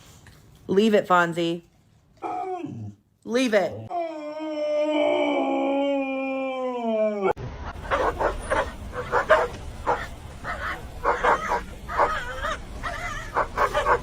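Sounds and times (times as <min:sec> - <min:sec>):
dog barking and yipping: 0:07.8 - 0:14.0.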